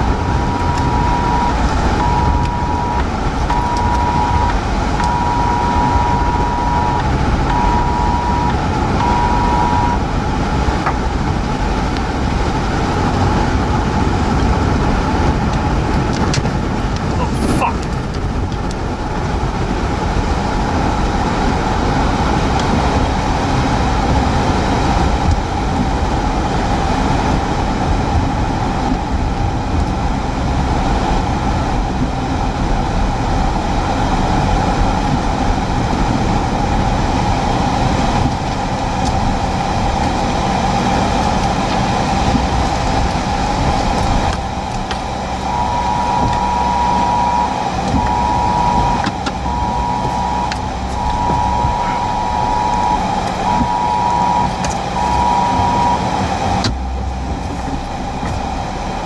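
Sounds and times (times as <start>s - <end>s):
car driving rumble: 0.0s - 59.0s
road and wind noise: 0.0s - 59.0s
high electronic beep: 0.2s - 10.0s, 45.0s - 57.0s.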